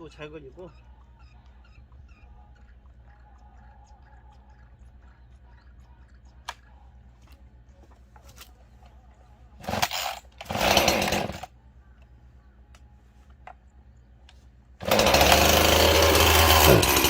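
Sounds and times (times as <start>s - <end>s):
chainsaw idling: 9.6s - 11.5s, 14.8s - 17.0s
chainsaw revving: 9.6s - 11.5s, 14.8s - 17.0s.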